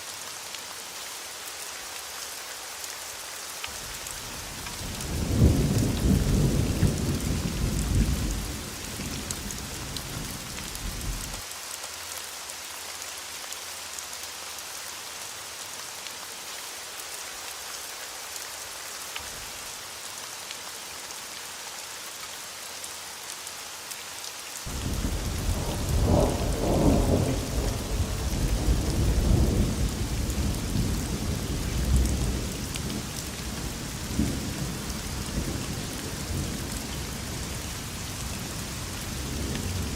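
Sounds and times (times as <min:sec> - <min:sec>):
heavy rain hissing: 0:00.0 - 0:39.9
thunder rumbling: 0:05.0 - 0:11.4, 0:24.7 - 0:33.0.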